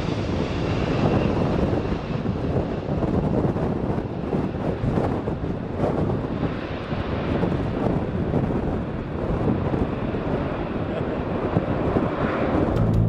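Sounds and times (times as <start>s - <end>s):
wind buffeting microphone: 0.0s - 13.0s
turboprop engines rumbling: 12.5s - 13.0s.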